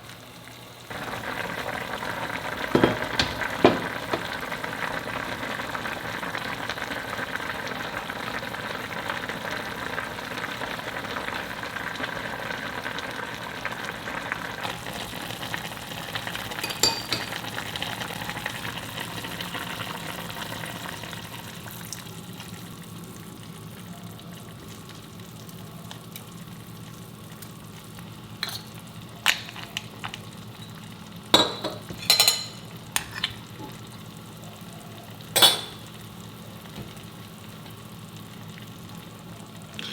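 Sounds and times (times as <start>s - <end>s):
food sizzling in a pot: 0.0s - 39.9s
utensil clinking against pot: 2.7s - 4.4s, 16.6s - 17.4s, 28.4s - 30.2s, 31.4s - 33.4s, 35.4s - 35.8s.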